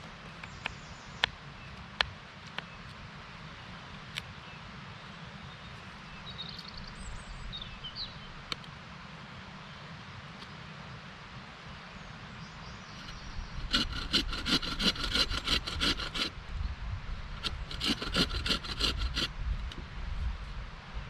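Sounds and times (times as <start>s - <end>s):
hand saw cutting wood: 13.0s - 16.4s, 17.4s - 19.3s.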